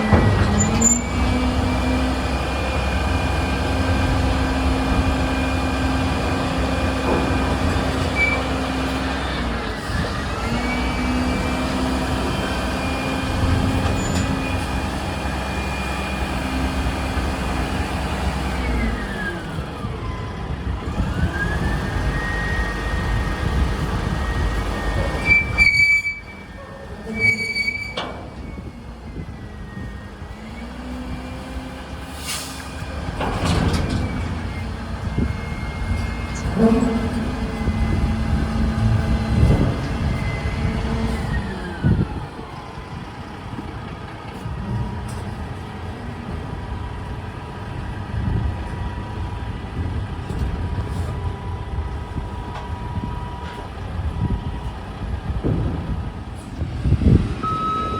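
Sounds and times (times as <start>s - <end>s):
diesel truck engine revving: 0.0s - 25.6s, 28.6s - 43.6s.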